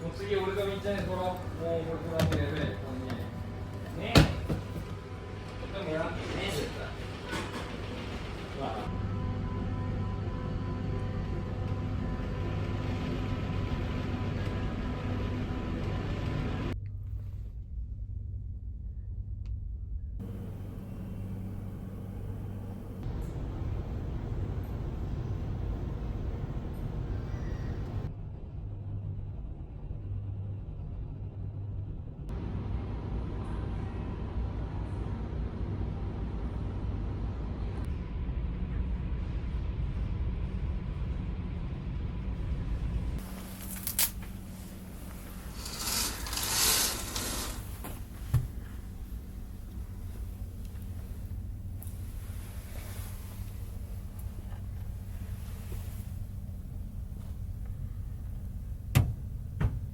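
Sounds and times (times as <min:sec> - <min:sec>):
ship engines humming: 0:00.0 - 0:16.8, 0:20.2 - 0:28.1, 0:42.4 - 0:59.9.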